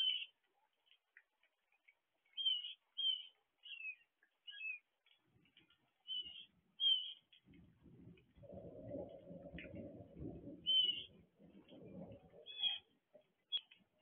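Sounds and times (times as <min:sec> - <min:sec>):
bird chirping: 0:00.0 - 0:00.4, 0:02.3 - 0:04.9, 0:05.6 - 0:07.4, 0:10.6 - 0:11.3, 0:12.4 - 0:13.8
low steady noise: 0:07.4 - 0:14.0.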